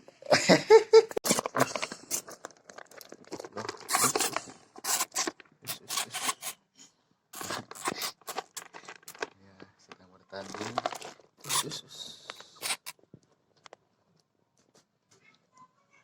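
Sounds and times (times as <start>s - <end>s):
rustling and scratching: 1.2s - 6.7s, 7.4s - 13.8s.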